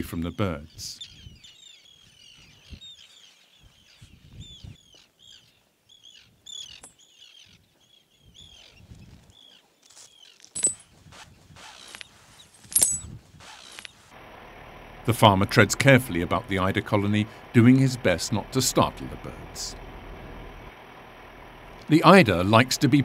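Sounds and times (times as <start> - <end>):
birds chirping: 0.0 - 23.0
rustles: 2.4 - 5.5, 8.6 - 14.9.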